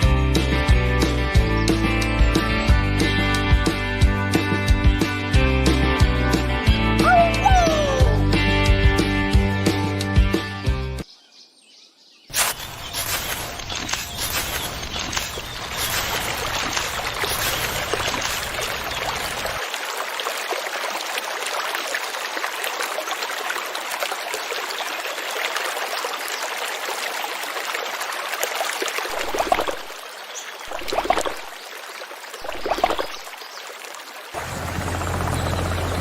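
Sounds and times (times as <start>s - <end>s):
stream water running: 12.3s - 36.0s
water gushes: 12.3s - 36.0s.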